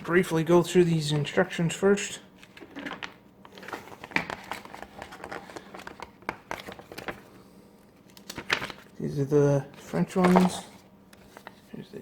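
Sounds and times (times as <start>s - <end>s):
paper crinkling and rustling: 2.4s - 7.4s, 8.0s - 9.0s, 9.7s - 11.8s.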